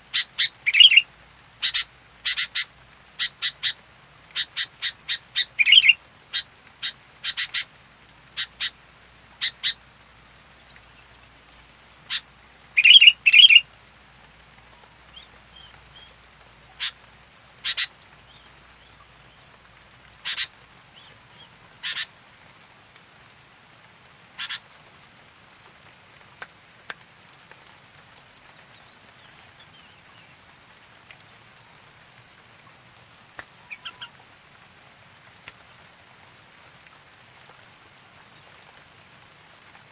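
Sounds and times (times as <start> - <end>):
bird chirping: 0.2 - 1.0, 4.4 - 6.0, 12.8 - 13.6, 27.8 - 30.4.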